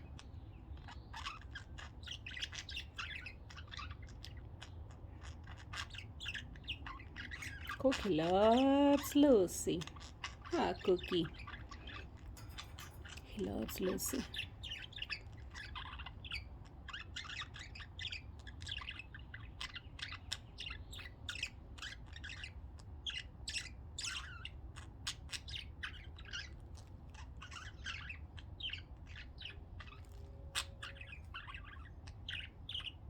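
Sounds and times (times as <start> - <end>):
low steady hum: 0.0 - 24.8
budgerigars chirping: 0.0 - 33.0.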